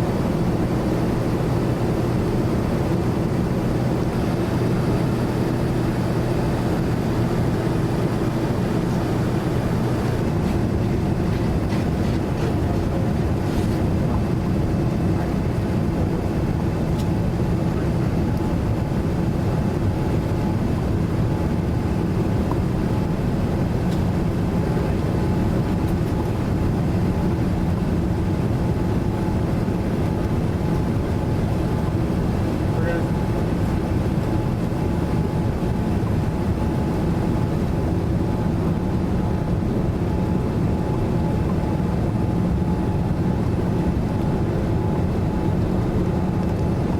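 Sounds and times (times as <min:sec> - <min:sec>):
airliner cabin engine drone: 0:00.0 - 0:46.9.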